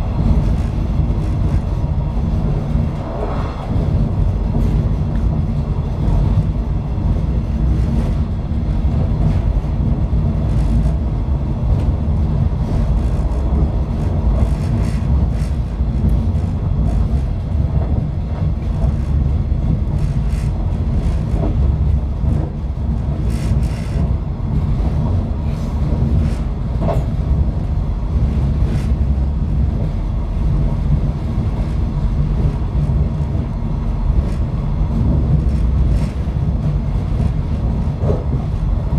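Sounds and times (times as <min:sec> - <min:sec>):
low rumble of train wheels: 0:00.0 - 0:38.9.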